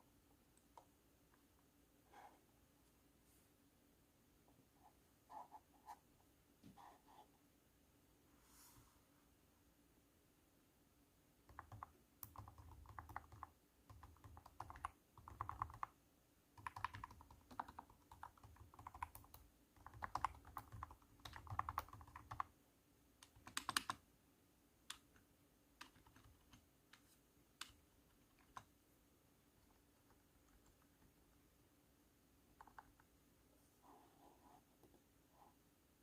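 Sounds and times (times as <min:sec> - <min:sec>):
deep thunky keyboard typing: 0:11.5 - 0:16.0, 0:16.6 - 0:22.6, 0:23.2 - 0:24.0, 0:24.9 - 0:26.7.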